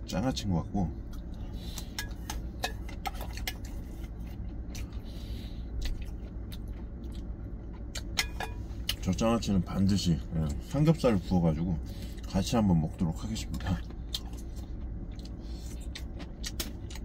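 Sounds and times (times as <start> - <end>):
steady low hum: 0.0 - 17.0
close-up chewing: 1.0 - 9.1, 13.4 - 17.0.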